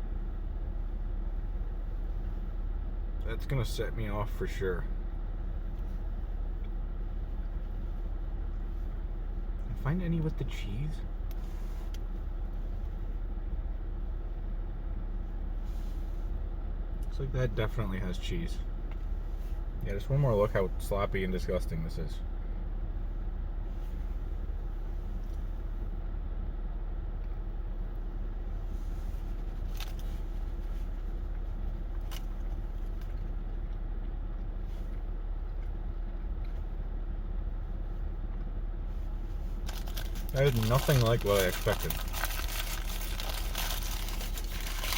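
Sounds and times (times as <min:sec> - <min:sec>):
faint constant hum: 0:00.0 - 0:44.9
low background rumble: 0:00.0 - 0:44.9.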